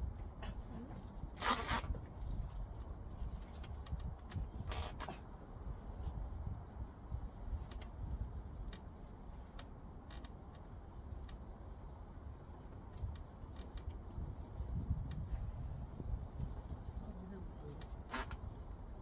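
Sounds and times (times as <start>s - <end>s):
steady low rumble: 0.0s - 19.0s
light clicks and ticks: 2.8s - 4.5s, 7.6s - 11.5s.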